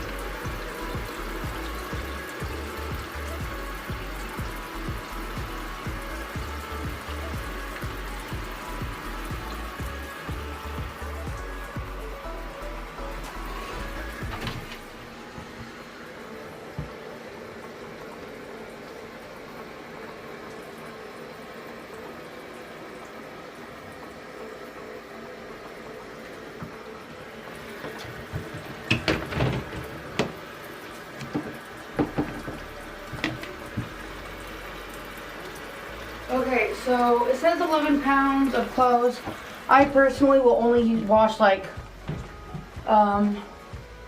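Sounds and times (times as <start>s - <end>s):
water running from hose into tub: 0.0s - 44.0s
knocks: 31.2s - 34.0s.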